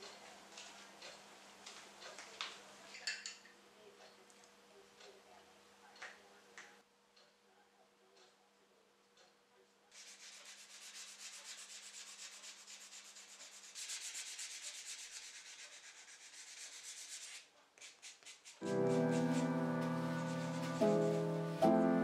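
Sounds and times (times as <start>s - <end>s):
sandpaper rubbing on clay: 10.0s - 21.6s.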